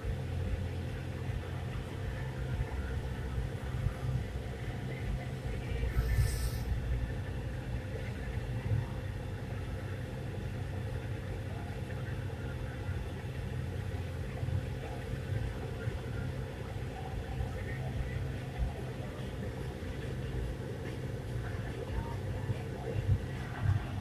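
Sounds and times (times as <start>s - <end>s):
brief hiss: 5.9s - 6.7s.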